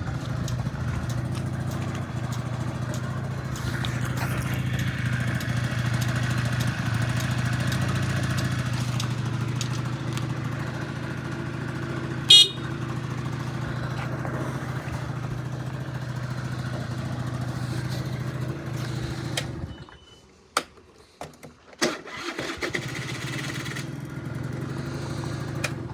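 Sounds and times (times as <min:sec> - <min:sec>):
scooter engine running: 0:00.0 - 0:19.9, 0:22.1 - 0:25.9
high-pitched engine blip: 0:12.3 - 0:12.8.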